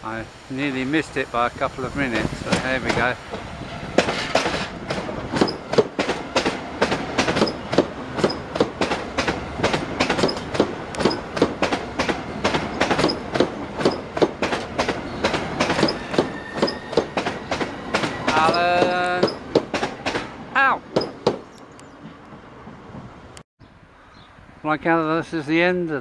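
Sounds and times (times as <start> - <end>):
train wheels clicking over rail joints: 2.1 - 20.3, 20.9 - 23.1.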